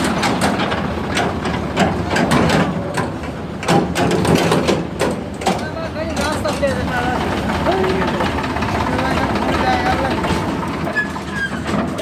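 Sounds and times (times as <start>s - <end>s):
metallic clattering and knocking: 0.0s - 6.9s
tractor diesel engine running: 0.0s - 12.0s.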